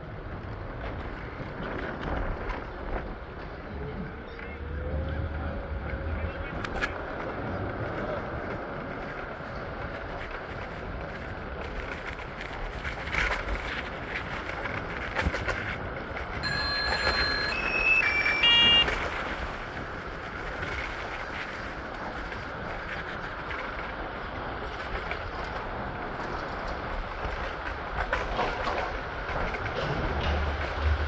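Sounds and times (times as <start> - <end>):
train running rumble: 0.0 - 31.0
electronic beep tones: 16.4 - 19.5.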